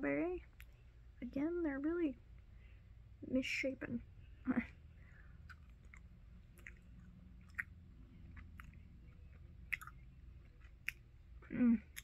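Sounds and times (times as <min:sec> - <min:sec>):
low steady hum: 0:00.0 - 0:12.0
person chewing: 0:04.7 - 0:12.0
wet mouth clicks and smacks: 0:05.4 - 0:08.8.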